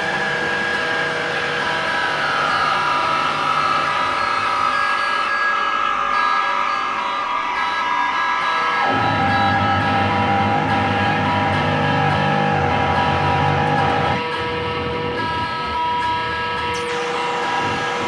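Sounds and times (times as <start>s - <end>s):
sustained noise music tones: 0.0s - 18.0s
low drone: 8.9s - 18.0s.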